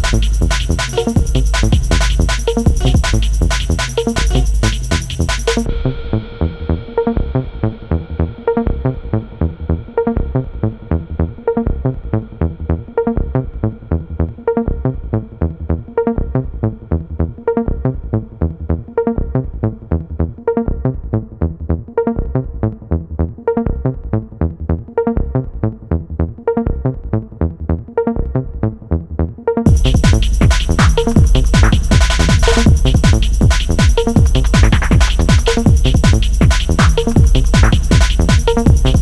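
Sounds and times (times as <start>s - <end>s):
electronic music with fast beat: 0.0s - 10.2s, 29.7s - 39.0s.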